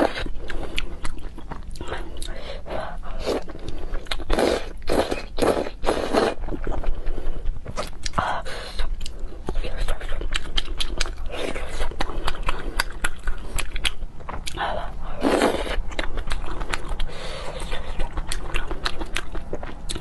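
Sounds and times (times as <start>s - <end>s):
person chewing noodle soup: 0.0s - 20.0s.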